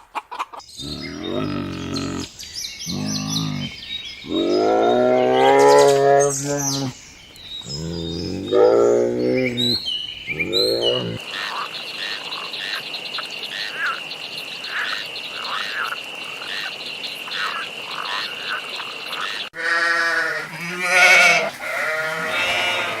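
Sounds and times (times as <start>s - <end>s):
drawn-out animal calls: 0.8s - 11.2s, 19.6s - 23.0s
high-pitched animal trill: 7.7s - 11.2s.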